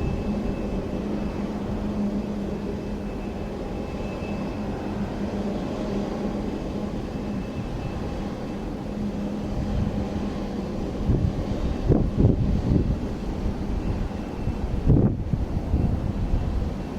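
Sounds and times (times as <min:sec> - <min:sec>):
distant jet engines droning: 0:00.0 - 0:16.9
wind buffeting microphone: 0:00.0 - 0:16.9.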